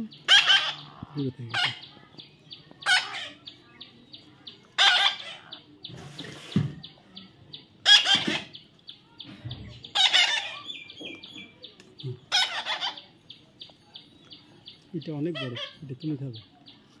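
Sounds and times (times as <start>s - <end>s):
parrot squawking: 0.1s - 1.9s, 2.8s - 3.4s, 4.8s - 5.6s, 7.8s - 8.6s, 9.9s - 10.9s, 12.2s - 13.1s, 15.4s - 15.8s.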